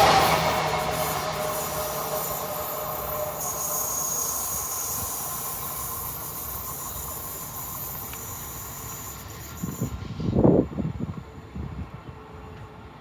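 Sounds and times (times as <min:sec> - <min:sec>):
steady high tones: 0:00.0 - 0:10.0
electric train running on track: 0:00.0 - 0:13.0.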